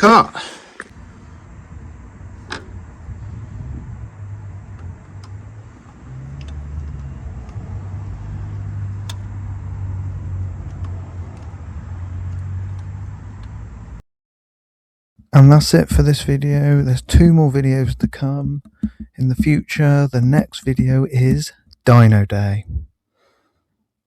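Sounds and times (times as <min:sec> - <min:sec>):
motor vehicle engine drone: 0:00.8 - 0:14.0.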